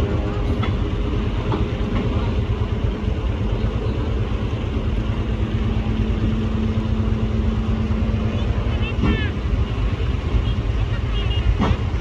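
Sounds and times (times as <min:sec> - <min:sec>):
machine engine rumbling: 0:00.0 - 0:12.0.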